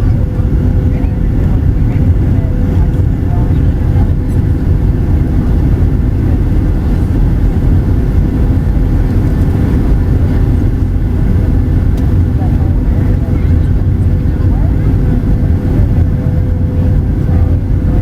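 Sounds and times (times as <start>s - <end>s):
aircraft cabin engine rumble: 0.0s - 18.0s
thin steady hum: 0.0s - 18.0s.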